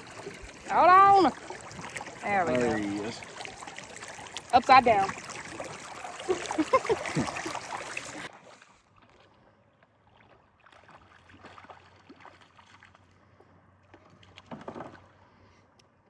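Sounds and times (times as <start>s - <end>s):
water splashing: 0.0s - 8.7s, 10.1s - 13.0s.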